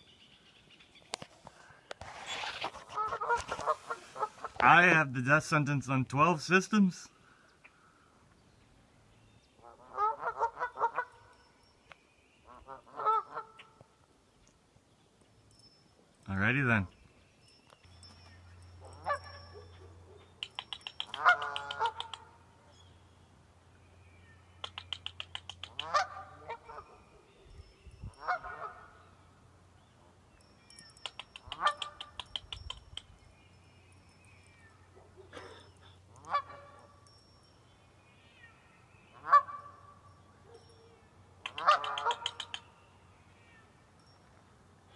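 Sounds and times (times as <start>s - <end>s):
short pulsed goose calls: 2.2s - 4.7s, 9.6s - 11.3s, 12.5s - 13.8s, 20.4s - 22.4s, 24.6s - 27.0s, 31.1s - 33.0s, 35.3s - 36.8s, 39.1s - 40.0s, 41.4s - 42.7s
geese honking: 2.6s - 4.6s, 9.6s - 11.2s, 12.5s - 13.7s, 21.2s - 22.2s, 25.8s - 26.9s, 28.2s - 29.0s, 36.1s - 36.8s, 39.1s - 39.8s, 41.5s - 42.4s.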